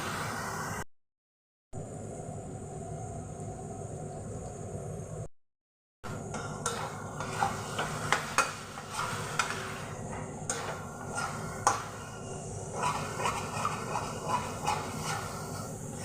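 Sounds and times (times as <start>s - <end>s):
food sizzling in a pan: 6.1s - 16.0s
spatula scraping a pan: 6.1s - 16.0s.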